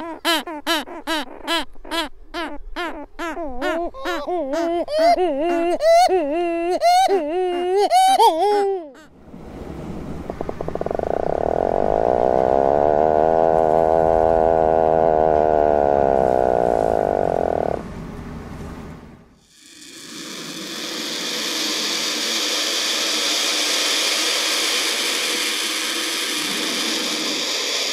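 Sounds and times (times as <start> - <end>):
shearwater wavering nasal calls: 10.8 - 17.8.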